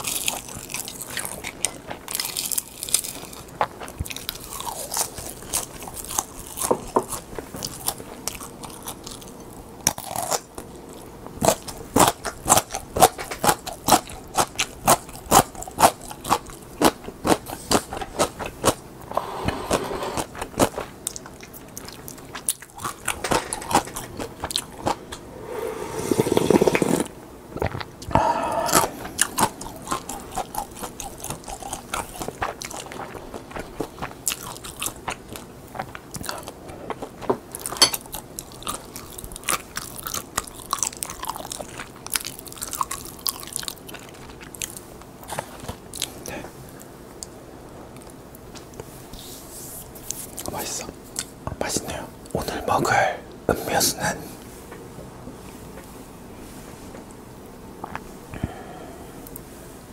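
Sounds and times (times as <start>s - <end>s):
crunching and chewing seaweed snack: 0.0s - 25.1s, 26.3s - 48.9s
smeared noise: 19.0s - 21.0s, 23.1s - 30.4s.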